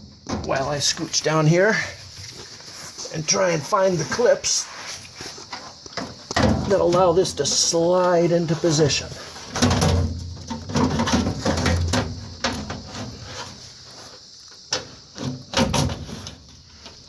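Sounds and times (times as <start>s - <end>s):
metal panels knocking and scraping: 5.5s - 7.7s, 9.4s - 13.6s, 14.7s - 16.4s.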